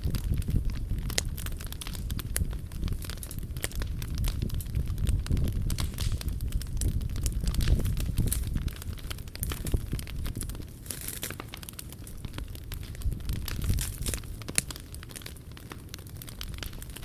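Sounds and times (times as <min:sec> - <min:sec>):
stove low rumble: 0:00.0 - 0:11.2
wood fire crackling and popping: 0:00.0 - 0:17.0.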